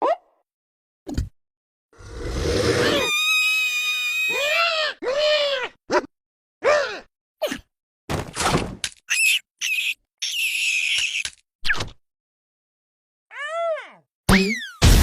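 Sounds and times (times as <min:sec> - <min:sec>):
high-pitched screaming cries: 0:02.8 - 0:05.8, 0:09.1 - 0:11.3.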